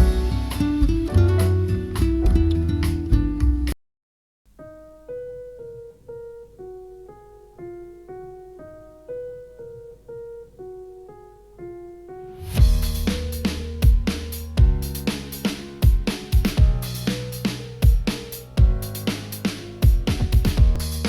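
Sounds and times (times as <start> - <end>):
quiet keyboard melody: 0.0 - 3.8, 4.5 - 21.0
loud music track: 12.4 - 21.0.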